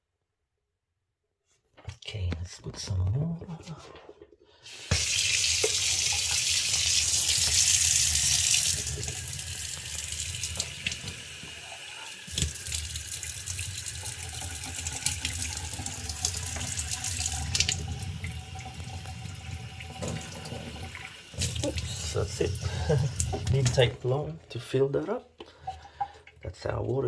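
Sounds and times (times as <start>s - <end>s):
tap water filling a tank: 4.7s - 23.9s, 25.4s - 26.4s.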